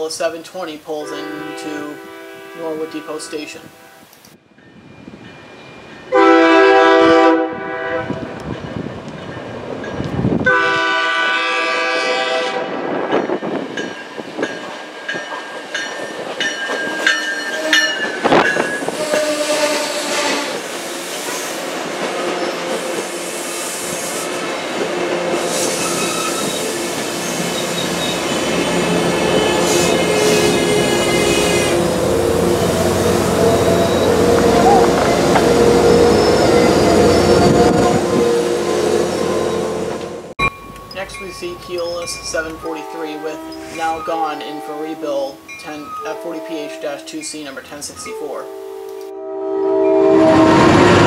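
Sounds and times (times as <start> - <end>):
train horn blasts: 1.0 - 4.1, 6.1 - 8.4, 10.4 - 13.0, 17.4 - 21.6, 25.0 - 40.3, 42.6 - 51.0
brake squeals: 25.6 - 28.8, 33.0 - 38.0.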